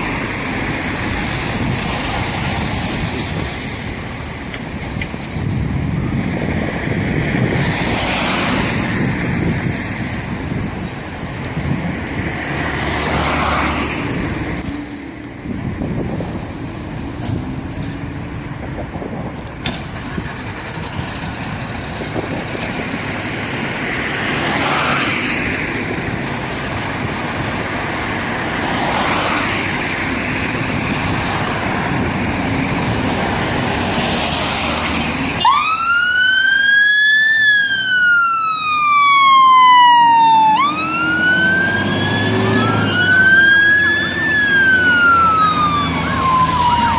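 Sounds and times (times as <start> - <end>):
road traffic: 0.0 - 46.9
vehicles passing: 0.0 - 46.9
engine running: 18.7 - 23.8
fire engine siren wailing: 34.6 - 46.9.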